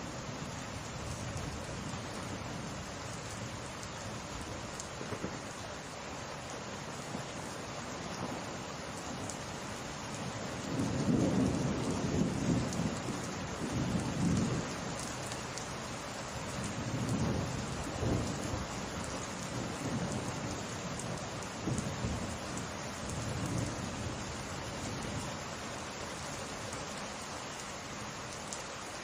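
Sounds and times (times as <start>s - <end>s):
steady rain: 0.0s - 29.0s
thunder rumbling: 10.7s - 14.8s, 16.6s - 18.7s.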